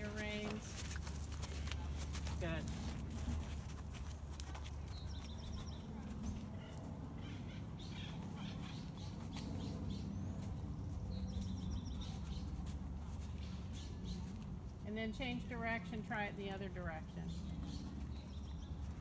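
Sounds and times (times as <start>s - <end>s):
bird chirps: 11.1s - 12.6s.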